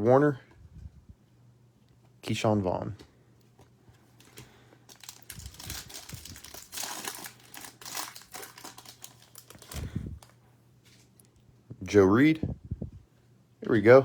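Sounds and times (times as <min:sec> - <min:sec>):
wrapper crinkling and tearing: 0:04.2 - 0:10.3.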